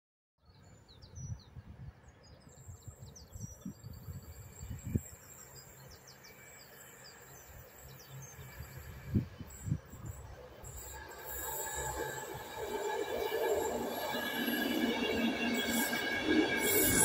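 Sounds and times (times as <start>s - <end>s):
wind rumbling on microphone: 0.8s - 5.3s, 8.4s - 10.8s.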